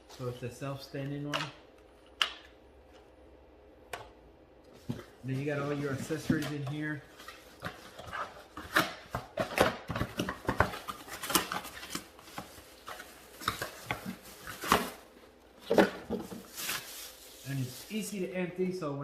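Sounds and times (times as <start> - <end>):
packaging rustling: 4.8 - 18.2.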